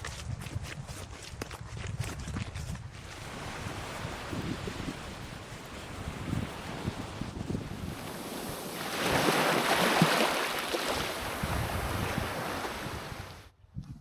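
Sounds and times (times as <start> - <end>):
wind buffeting microphone: 0.2 - 14.0
sea waves washing onto shore: 3.0 - 13.5.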